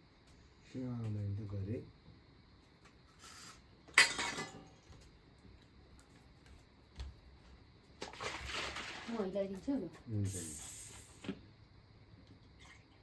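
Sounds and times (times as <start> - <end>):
tableware scraping: 3.2 - 4.7
tableware clinking: 4.0 - 4.8.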